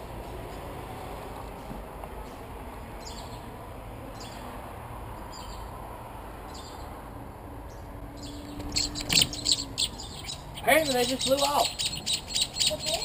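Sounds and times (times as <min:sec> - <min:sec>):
steady outdoor background noise: 0:00.0 - 0:13.0
birds chirping: 0:02.2 - 0:03.5, 0:04.1 - 0:04.5, 0:05.3 - 0:05.7, 0:07.7 - 0:13.0.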